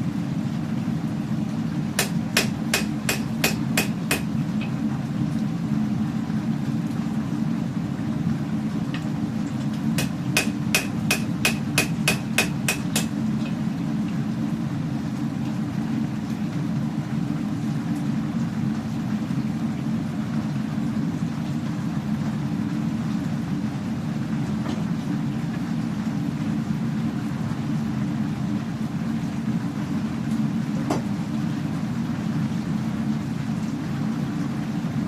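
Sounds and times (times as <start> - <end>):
hammer striking steel on anvil: 2.0 - 4.3, 10.0 - 13.2.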